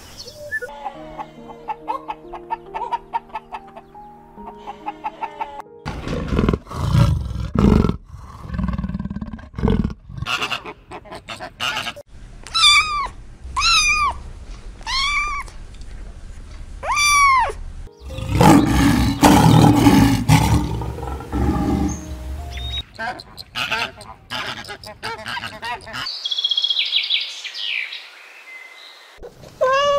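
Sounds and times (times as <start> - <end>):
high arched animal calls: 16.9 - 26.1
low animal roars: 18.0 - 22.4.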